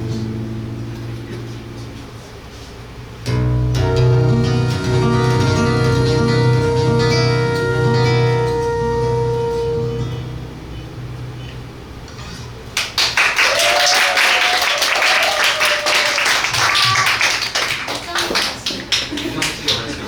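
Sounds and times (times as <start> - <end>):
guitar strumming: 0.0 - 13.0
flute held note: 5.3 - 12.6.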